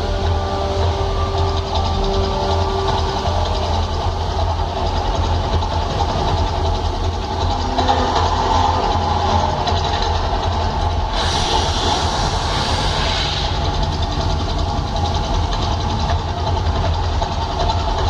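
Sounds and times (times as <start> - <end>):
deep rumble: 0.0 - 18.0
hissing rush: 8.9 - 16.1.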